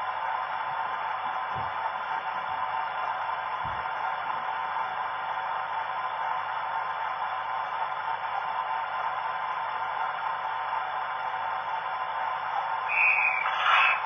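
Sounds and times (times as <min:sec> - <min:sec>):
hissing drone from small speaker: 0:12.9 - 0:14.0.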